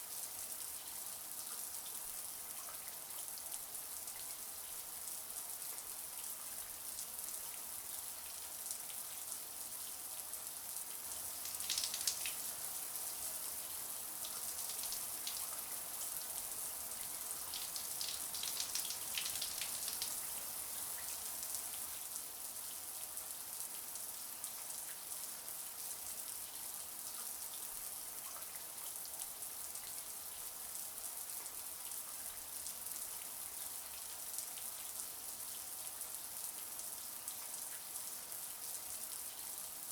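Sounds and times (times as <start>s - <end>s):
shower spraying water: 11.4s - 12.4s
water spattering: 11.5s - 12.4s.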